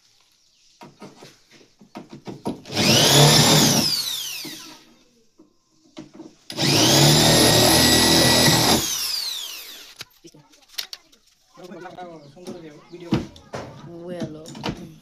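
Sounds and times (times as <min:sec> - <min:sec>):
power tool motor whining: 0:02.5 - 0:04.9, 0:06.5 - 0:10.0.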